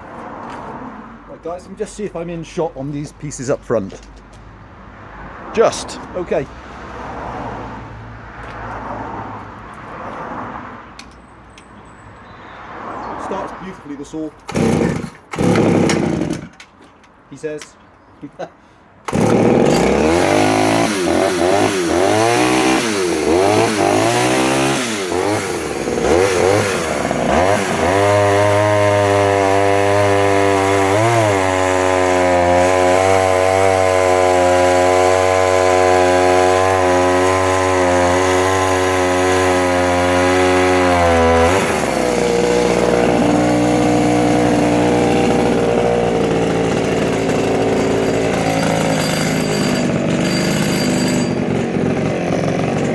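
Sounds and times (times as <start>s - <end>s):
chainsaw revving and cutting: 14.5s - 16.5s, 19.1s - 52.9s.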